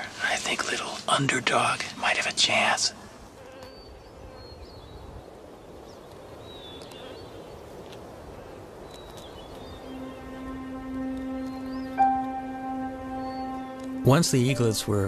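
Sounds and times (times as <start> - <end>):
faint steady hiss: 0.0 - 15.0
high bird chirps: 9.0 - 14.8
low sustained music note: 9.6 - 15.0.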